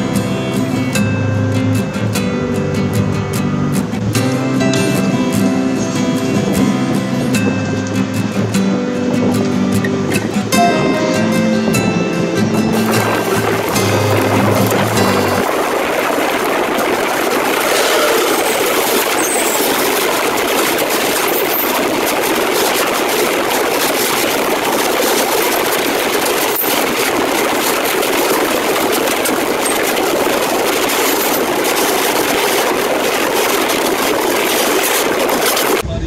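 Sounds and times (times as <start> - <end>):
moving train rushing noise: 10.2 - 36.0.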